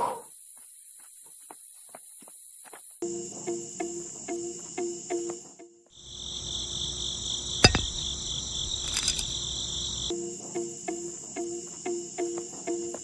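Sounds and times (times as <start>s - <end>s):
crickets trilling: 0.2s - 13.0s
light rattle: 7.6s - 8.1s, 8.7s - 9.4s.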